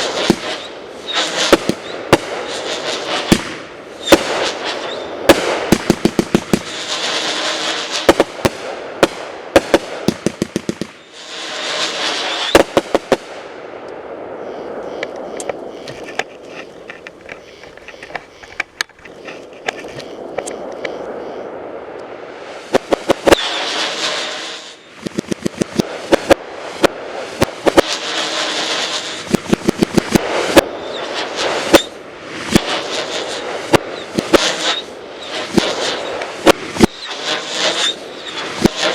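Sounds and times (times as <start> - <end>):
firework pops and crackling: 0.0 - 11.0, 11.8 - 13.4, 22.7 - 38.9
firework whistles: 0.0 - 13.5, 22.4 - 38.9.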